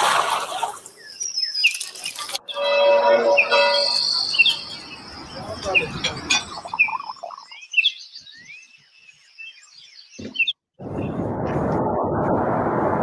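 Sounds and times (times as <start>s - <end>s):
small birds chirping: 0.8s - 10.6s
steady rushing noise: 10.8s - 13.0s.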